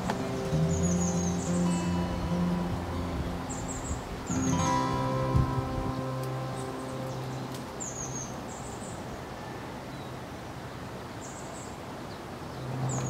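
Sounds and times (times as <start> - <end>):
background music: 0.0 - 8.7.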